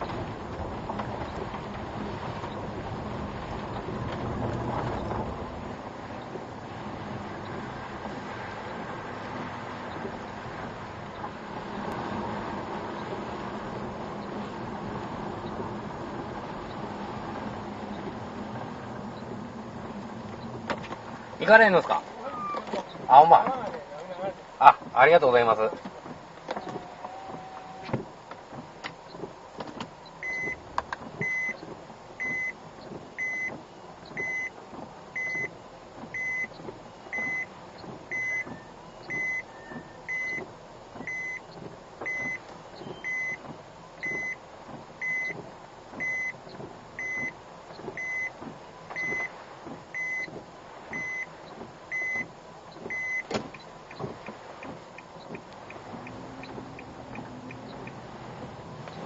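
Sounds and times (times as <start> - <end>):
car noise: 0.0 - 59.0
car warning beep: 21.4 - 23.8, 30.0 - 44.4, 45.0 - 58.0
faint ticking: 45.0 - 59.0.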